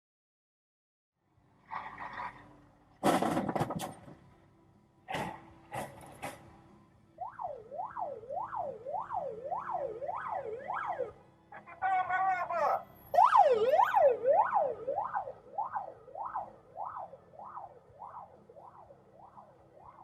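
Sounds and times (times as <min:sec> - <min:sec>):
emergency siren yelping: 0:07.2 - 0:20.0.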